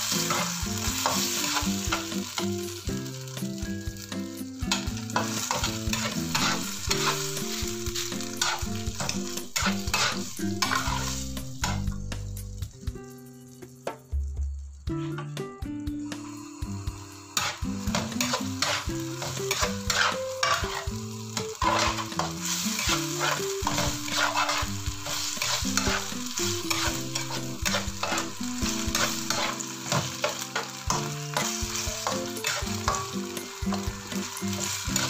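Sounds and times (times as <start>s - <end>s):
food sizzling in a pan: 0.0s - 35.0s
simple background melody: 0.0s - 35.0s
spatula scraping a pan: 4.7s - 11.8s, 17.4s - 33.1s, 33.7s - 35.0s.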